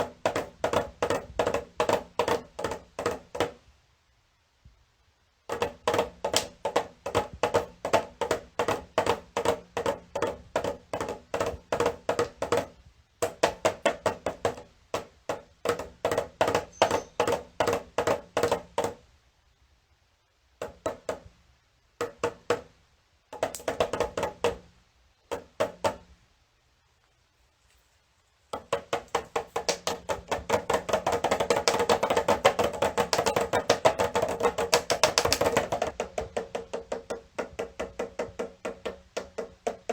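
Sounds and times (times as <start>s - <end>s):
small tuned drum taps: 31.3s - 39.5s.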